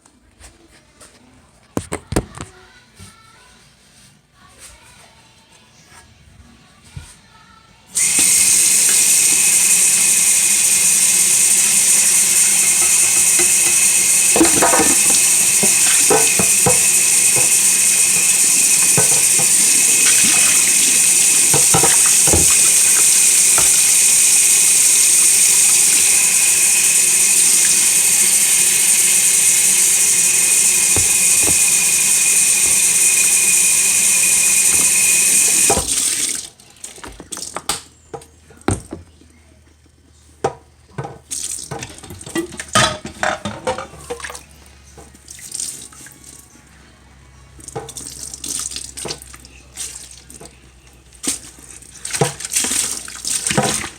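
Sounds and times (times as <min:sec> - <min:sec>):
kitchen tap running: 0:08.0 - 0:37.8, 0:40.4 - 0:44.4, 0:47.6 - 0:50.6, 0:51.2 - 0:53.9
knocks of things in sink: 0:12.6 - 0:24.0, 0:29.8 - 0:31.8.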